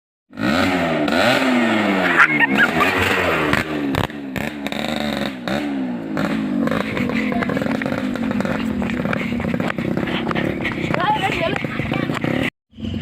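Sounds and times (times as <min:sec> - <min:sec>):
vehicle engine revving: 0:00.3 - 0:13.0.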